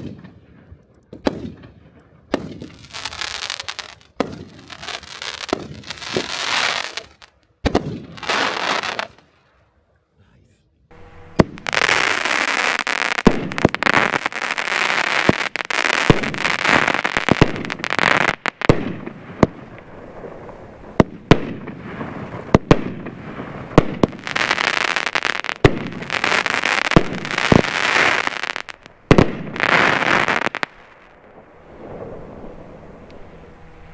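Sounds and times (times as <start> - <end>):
fireworks crackling hiss: 2.3 - 9.4, 10.9 - 33.9
fireworks launch and break reports: 11.0 - 33.2.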